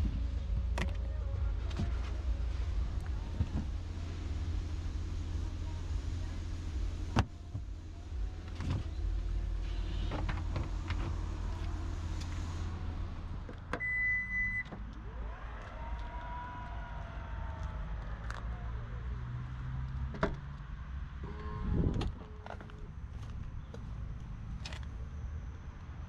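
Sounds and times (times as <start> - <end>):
car cabin rumble: 0.0 - 15.1, 21.1 - 26.0
high electronic beep: 13.8 - 14.7.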